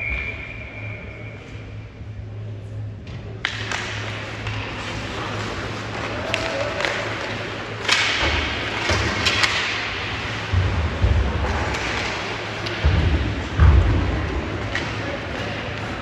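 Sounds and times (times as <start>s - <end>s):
hockey sticks clacking on puck: 3.4s - 16.0s.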